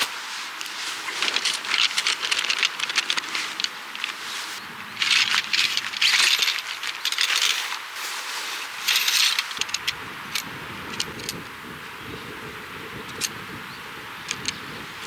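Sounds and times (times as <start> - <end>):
rustling: 0.0 - 10.4
metallic clinking and rattling: 0.6 - 7.9, 8.6 - 11.4, 14.3 - 14.6.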